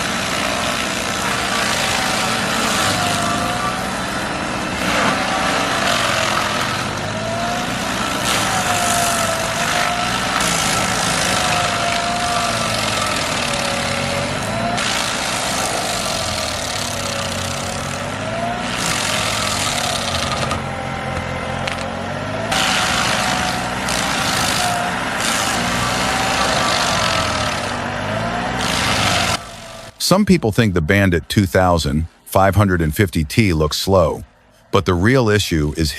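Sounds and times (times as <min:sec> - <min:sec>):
heavy machine engine working: 0:00.0 - 0:30.3.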